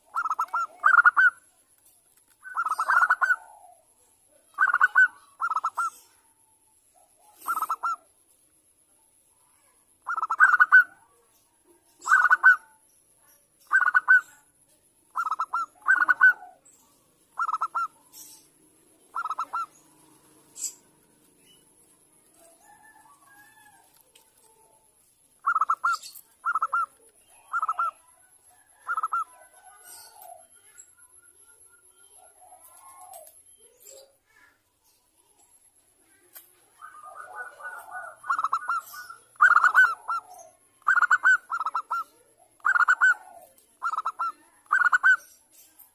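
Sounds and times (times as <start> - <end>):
dove cooing: 0.0 - 1.5, 2.4 - 6.3, 7.0 - 8.1, 10.0 - 11.1, 12.0 - 12.7, 13.7 - 14.4, 15.1 - 16.7, 17.3 - 24.8, 25.4 - 30.8, 32.1 - 34.1, 36.7 - 45.3.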